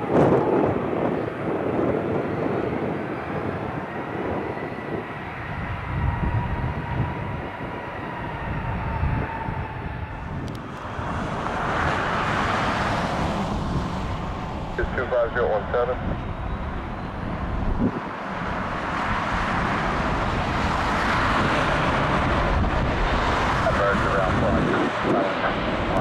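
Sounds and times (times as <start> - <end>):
jet engines whining: 0.0 - 26.0
wind buffeting microphone: 0.0 - 26.0
rush of jet noise: 17.3 - 26.0.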